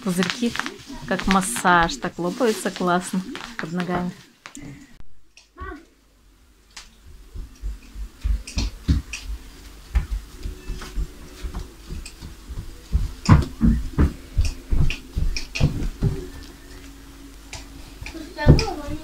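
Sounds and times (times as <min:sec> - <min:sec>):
bubble wrap popping: 0:00.0 - 0:04.6
soft footstep thuds: 0:06.8 - 0:17.0.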